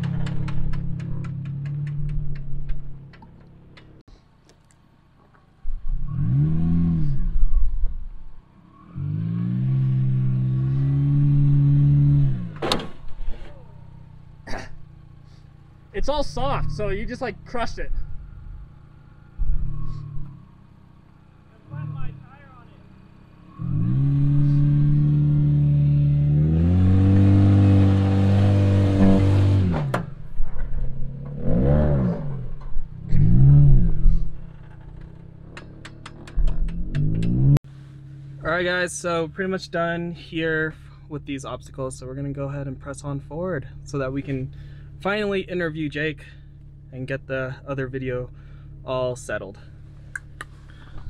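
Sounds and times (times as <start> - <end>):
car engine revving: 0.0 - 4.0, 5.7 - 39.6.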